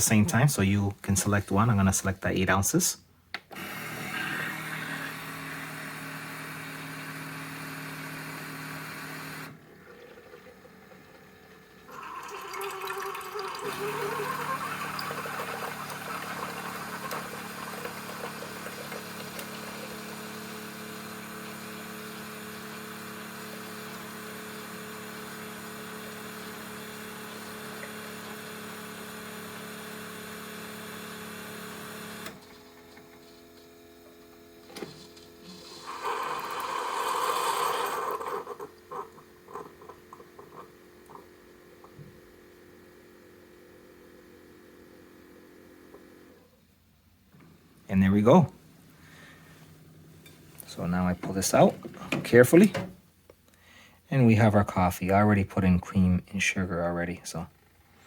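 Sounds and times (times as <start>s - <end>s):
coffee maker pump humming: 3.5s - 52.9s
hot water gurgling: 9.4s - 29.1s, 35.6s - 41.4s.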